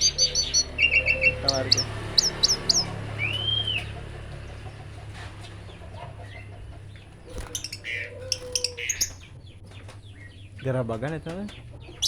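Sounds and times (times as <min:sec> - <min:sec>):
bird whistle: 0:00.0 - 0:03.9.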